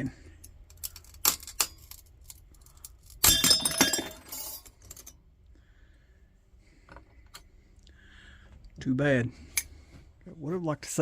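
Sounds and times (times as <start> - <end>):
glass pieces tinkling: 3.1 - 5.1
glass shattering: 3.2 - 4.7.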